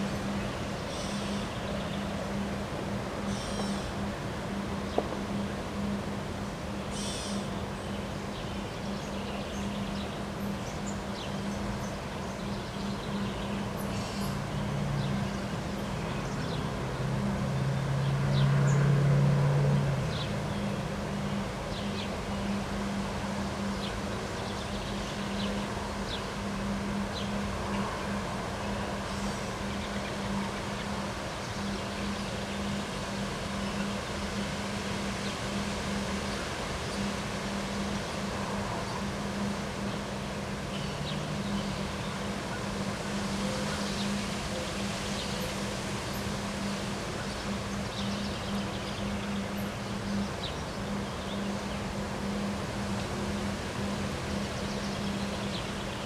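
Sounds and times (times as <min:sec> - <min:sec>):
engine-like drone: 0:11.8 - 0:56.0.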